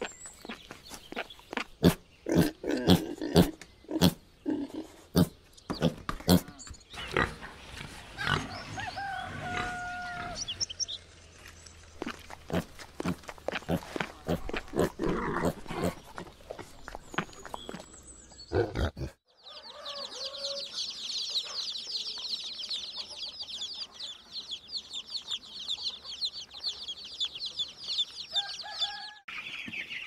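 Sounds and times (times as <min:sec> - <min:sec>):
pigs grunting: 0:01.5 - 0:08.8, 0:12.0 - 0:17.4, 0:18.5 - 0:19.2.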